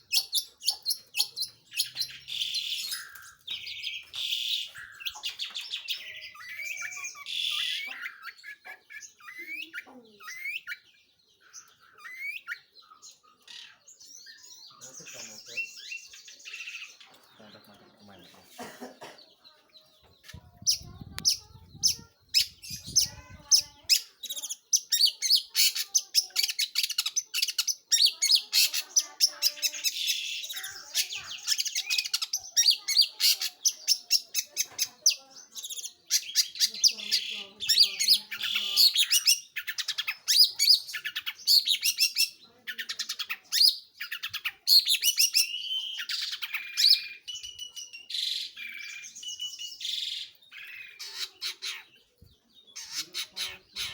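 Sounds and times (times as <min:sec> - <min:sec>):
bird chattering song: 0:00.0 - 0:53.9.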